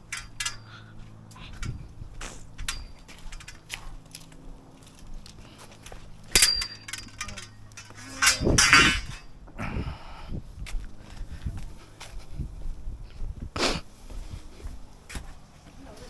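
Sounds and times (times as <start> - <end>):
metal tools clanking: 0.0 - 4.0, 6.2 - 9.4
sharp ringing metal clang: 0.1 - 0.9, 2.6 - 3.6, 6.3 - 9.4.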